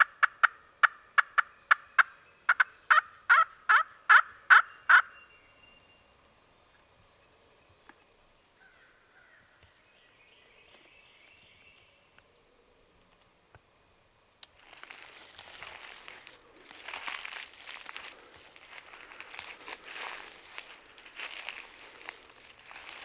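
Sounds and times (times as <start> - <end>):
crunching rustle of dry leaves: 14.4 - 23.0
small birds calling: 14.6 - 23.0.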